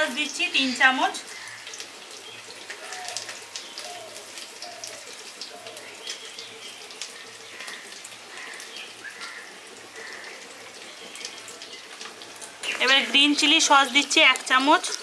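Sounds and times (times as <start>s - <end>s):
vegetables sizzling in oil: 0.0s - 15.0s
scattered crackles: 2.6s - 8.7s.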